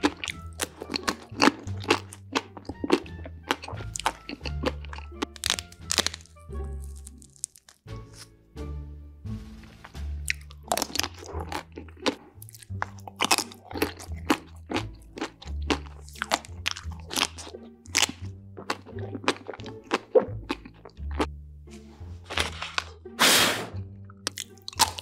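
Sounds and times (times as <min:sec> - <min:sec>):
crunchy chewing of food: 0:00.0 - 0:08.3, 0:09.6 - 0:21.3, 0:22.0 - 0:23.0, 0:24.1 - 0:25.0
background music with bass line: 0:07.8 - 0:25.0.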